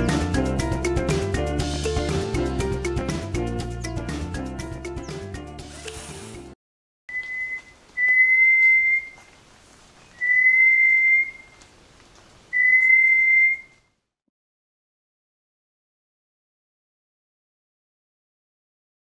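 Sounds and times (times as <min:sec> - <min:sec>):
bird whistled song: 0:07.1 - 0:09.3, 0:10.0 - 0:11.6, 0:12.5 - 0:13.9.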